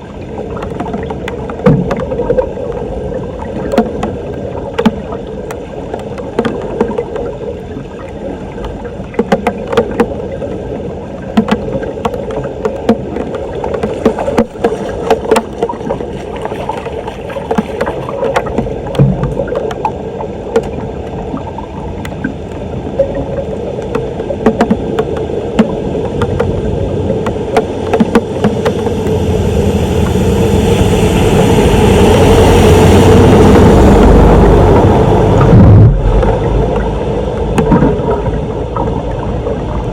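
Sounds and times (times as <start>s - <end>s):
floodwater rushing and gurgling: 0.0s - 39.9s
sharp clicks and knocks: 8.6s - 10.2s, 11.3s - 20.8s, 23.8s - 29.2s, 35.4s - 38.3s.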